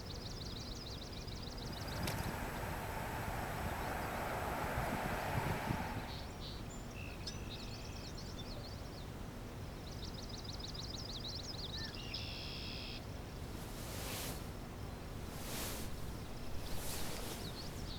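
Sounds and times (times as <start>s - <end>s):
low outdoor rumble: 1.6s - 6.6s, 13.4s - 17.9s
small birds chirping: 15.2s - 17.9s.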